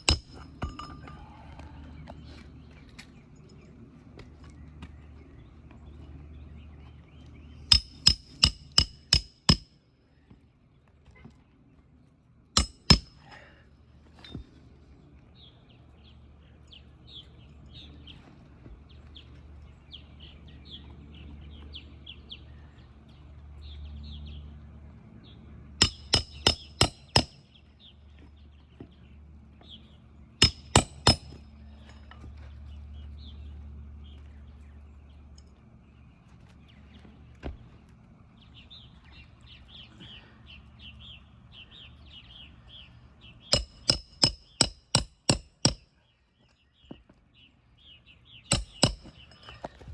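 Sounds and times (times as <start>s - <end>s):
hammer striking nails: 7.7s - 9.7s, 12.6s - 13.3s, 25.8s - 27.4s, 30.4s - 31.4s, 43.5s - 45.9s, 48.5s - 49.5s.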